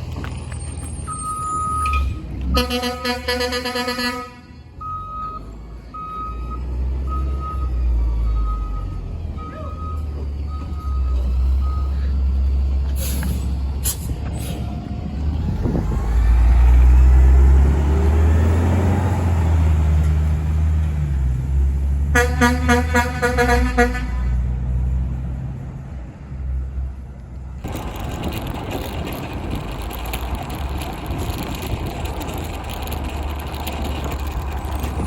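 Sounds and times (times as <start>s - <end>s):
diesel engine revving: 0.0s - 35.0s
reversing alarm beeping: 0.9s - 2.2s, 4.8s - 12.2s.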